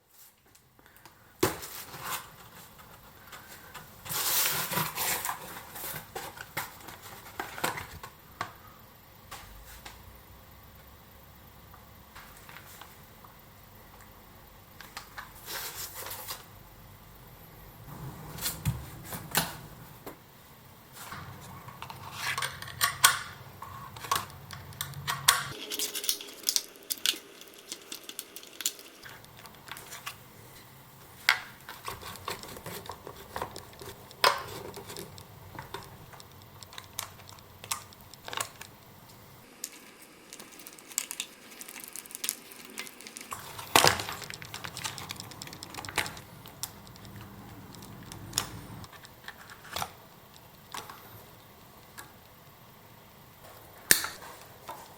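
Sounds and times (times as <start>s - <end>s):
metal tools clinking: 24.8s - 29.1s.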